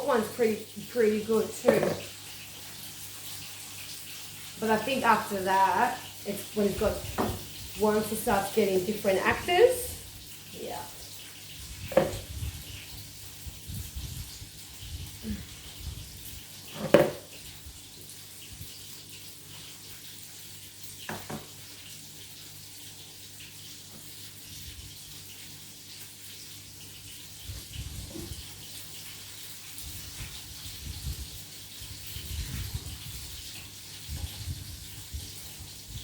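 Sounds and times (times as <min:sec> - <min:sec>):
steady hiss with low hum: 0:00.0 - 0:36.0.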